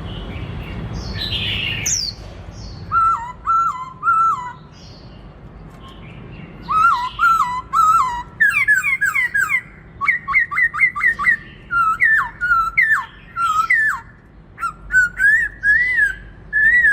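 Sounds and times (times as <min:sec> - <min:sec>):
bird singing whistled phrases: 0:02.8 - 0:04.8, 0:06.6 - 0:16.9.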